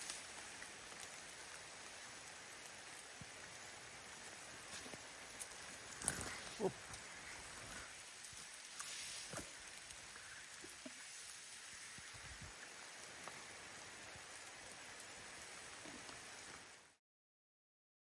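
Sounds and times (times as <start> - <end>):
gentle rain hissing: 0.0 - 17.0.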